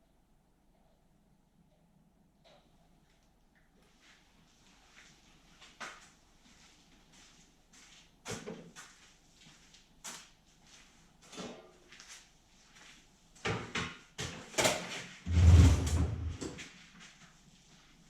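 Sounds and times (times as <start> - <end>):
heavy rumbling knock and scrape: 15.3 - 16.6.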